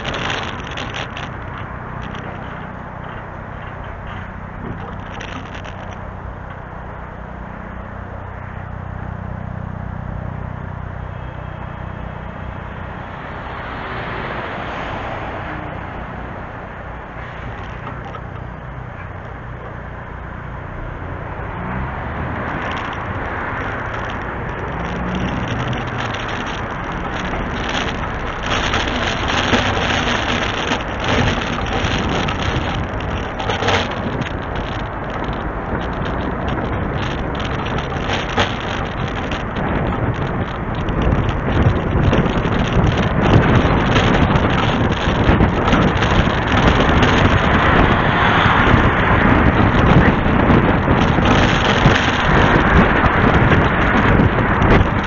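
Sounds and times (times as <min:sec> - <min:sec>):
steady rushing noise: 0:00.0 - 0:55.0
truck diesel engine running: 0:15.6 - 0:55.0.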